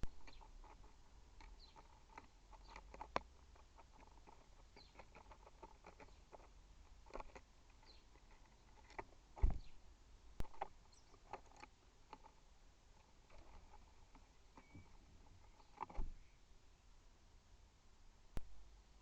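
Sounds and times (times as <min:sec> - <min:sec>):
faint high bird chirps: 0:00.0 - 0:00.6, 0:01.5 - 0:02.0, 0:04.7 - 0:05.2, 0:07.8 - 0:08.7, 0:09.5 - 0:09.8, 0:10.8 - 0:11.4, 0:13.8 - 0:16.6
beaks pecking on feeder: 0:00.0 - 0:09.8, 0:10.4 - 0:16.3
heavy knock with thud: 0:09.4 - 0:09.7.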